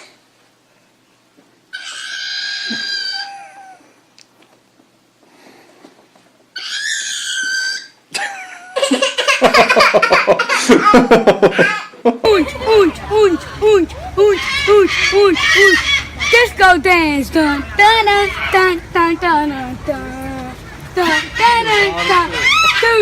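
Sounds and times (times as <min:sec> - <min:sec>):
animal high-pitched calls: 0:01.7 - 0:03.9, 0:06.6 - 0:08.0, 0:11.5 - 0:19.1, 0:20.0 - 0:23.0
fast pulsing pitched sounds: 0:12.3 - 0:23.0.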